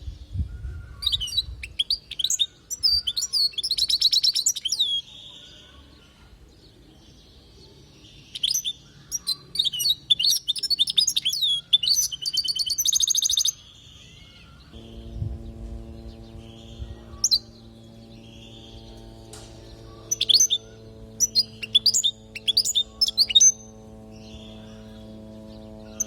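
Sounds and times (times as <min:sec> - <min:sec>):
finch twittering with trills: 0:00.1 - 0:05.9, 0:07.0 - 0:26.0.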